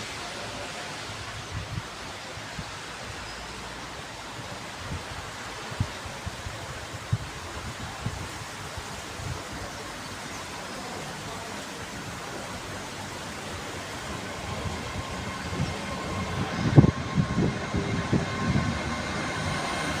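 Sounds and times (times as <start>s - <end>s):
train rumbling: 10.9s - 20.0s.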